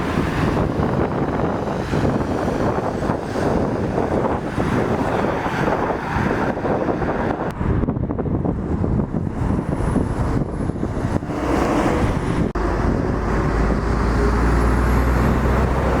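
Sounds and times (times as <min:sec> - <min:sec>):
truck diesel engines passing: 0:00.0 - 0:16.0
low engine drone: 0:08.5 - 0:16.0.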